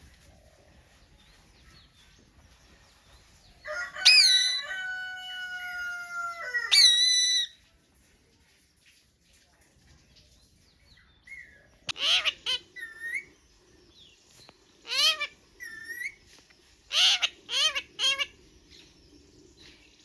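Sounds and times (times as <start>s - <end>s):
rooster crowing: 3.7s - 6.9s
parrot squawking: 6.7s - 7.5s, 11.9s - 13.2s, 14.8s - 16.1s, 16.9s - 18.3s.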